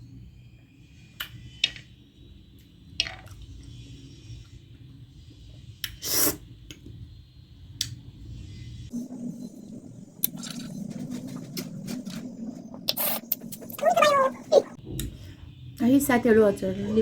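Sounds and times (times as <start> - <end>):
wet squish of chewing: 10.2 - 12.3.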